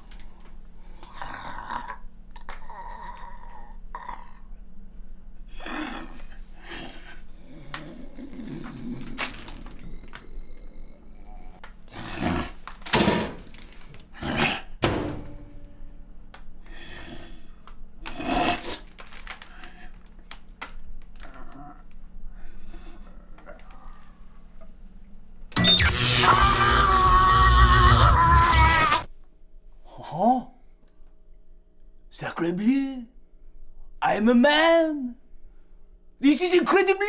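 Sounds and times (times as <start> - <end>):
steady low hum: 4.4 - 18.4
man groaning and grunting: 26.2 - 29.1.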